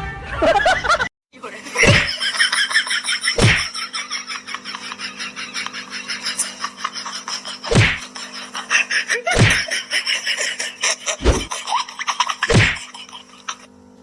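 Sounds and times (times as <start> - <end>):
steady hum: 1.6 - 14.0
heavy thumps: 3.4 - 3.7, 7.7 - 8.0, 9.4 - 9.6, 11.2 - 11.5, 12.5 - 12.8.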